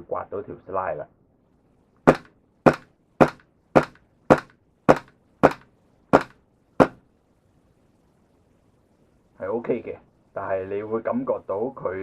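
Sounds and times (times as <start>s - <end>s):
airsoft pistol shots: 2.1s - 7.0s.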